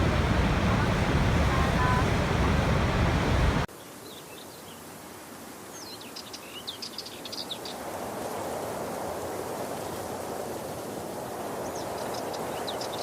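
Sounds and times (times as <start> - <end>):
waterfall rushing: 0.0 - 3.7
outdoor hiss: 0.0 - 6.8.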